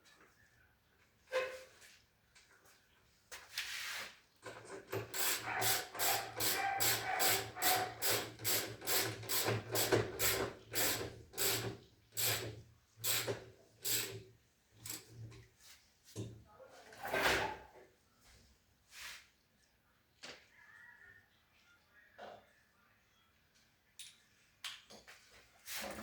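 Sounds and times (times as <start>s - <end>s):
hand tool scraping: 5.0s - 12.4s.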